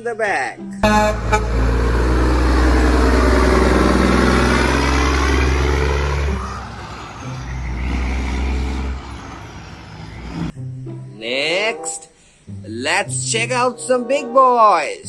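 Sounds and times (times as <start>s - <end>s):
heavy truck engine rumbling: 0.8s - 10.5s.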